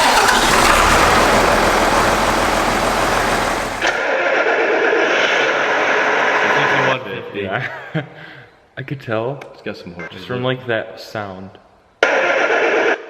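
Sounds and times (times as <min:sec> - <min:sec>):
tractor diesel engine running: 0:00.0 - 0:04.0.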